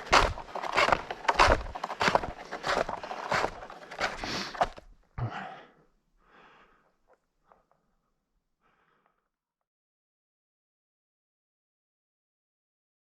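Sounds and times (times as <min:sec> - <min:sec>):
snowshoes crunching in snow: 0:00.0 - 0:04.8.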